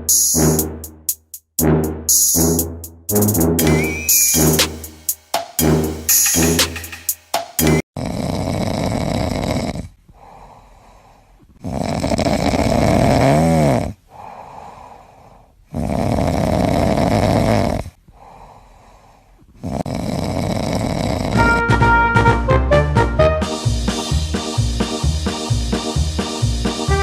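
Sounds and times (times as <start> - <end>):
cat snoring: 8.0 - 18.5, 19.6 - 21.4
cat breathing: 10.1 - 11.4, 14.1 - 15.6, 18.1 - 20.8.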